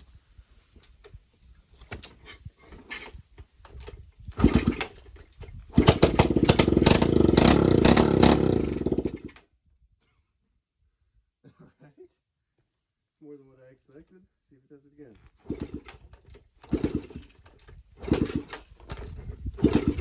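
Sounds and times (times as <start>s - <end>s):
dirt bike engine running loud: 5.7s - 9.3s, 19.6s - 20.0s.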